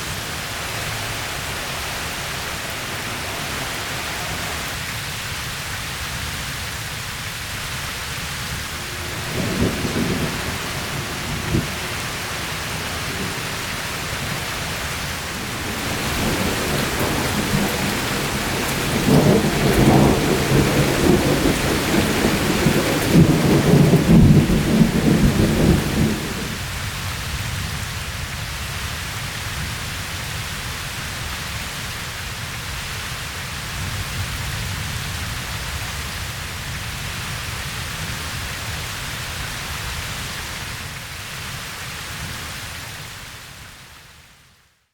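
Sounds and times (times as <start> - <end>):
thunder rumbling: 0.0 - 4.9, 8.1 - 26.6
steady rain falling: 0.0 - 44.8.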